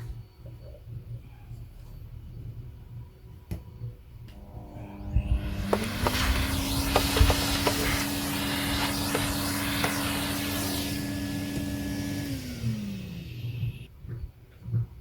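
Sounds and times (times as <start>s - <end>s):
vacuum cleaner running: 4.3s - 13.9s.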